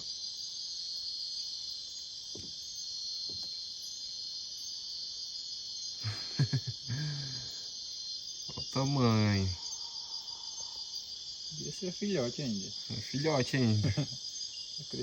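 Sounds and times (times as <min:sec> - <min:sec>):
high-pitched insect chorus: 0:00.0 - 0:15.0
person speaking: 0:11.6 - 0:14.1.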